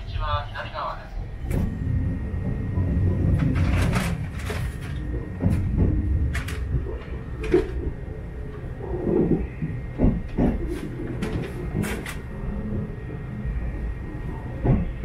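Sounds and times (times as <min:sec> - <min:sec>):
train carriage running rumble: 0:00.0 - 0:15.0
knocks and rattles: 0:01.5 - 0:08.0.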